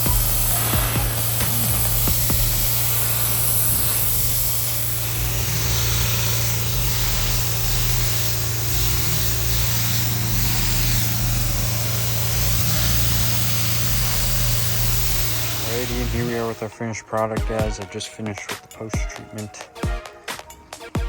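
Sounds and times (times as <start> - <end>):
pressure washer humming: 0.0 - 16.8
water spraying hiss: 0.0 - 16.8.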